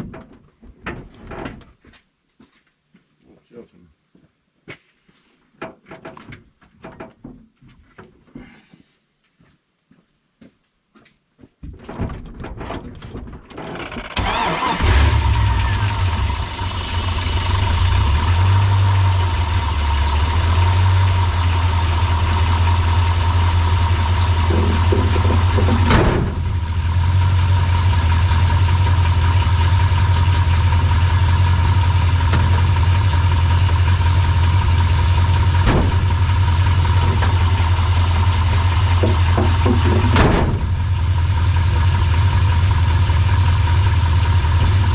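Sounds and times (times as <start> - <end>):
truck engine cranking and starting: 13.5 - 44.9
engine running steadily: 14.2 - 44.9
clicks and knocks: 24.4 - 26.4, 35.6 - 36.2, 38.4 - 40.8
sharp knock: 35.6 - 36.1.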